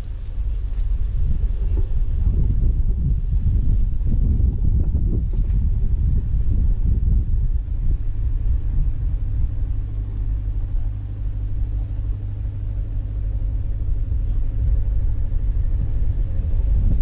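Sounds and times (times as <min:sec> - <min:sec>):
low rumble: 0:00.0 - 0:17.0
motor running steadily: 0:00.0 - 0:17.0.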